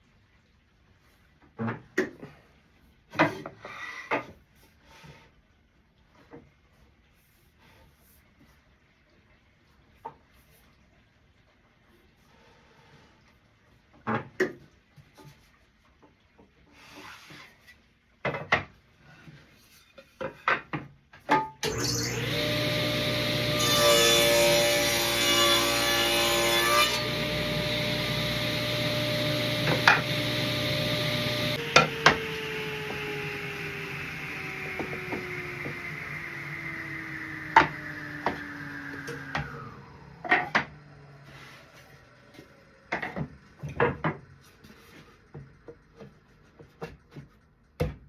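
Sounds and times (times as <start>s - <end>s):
saw blade spinning down: 21.6s - 43.7s
table saw cutting wood: 21.6s - 45.0s.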